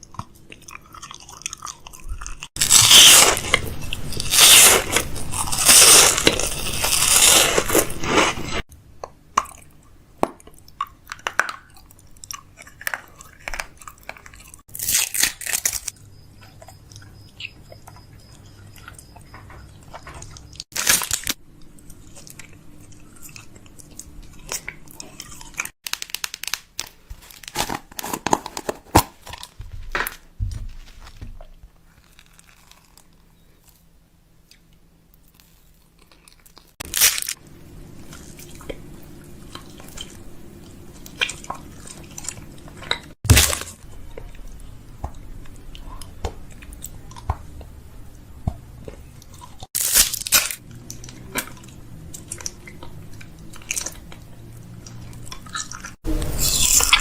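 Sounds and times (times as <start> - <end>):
containers and packaging clicking: 25.8 - 30.2
faint low hum: 28.5 - 57.0.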